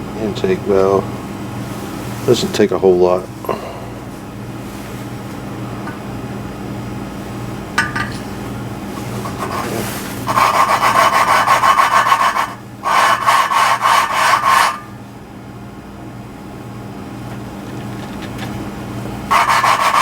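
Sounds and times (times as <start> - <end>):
valve grinding against seat: 19.3 - 20.0.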